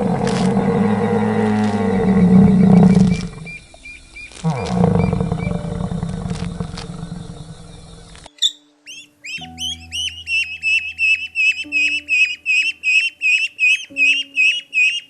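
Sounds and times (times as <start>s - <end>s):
large animal's deep calls: 0.0s - 8.3s
high repeated chirping calls: 0.0s - 15.0s.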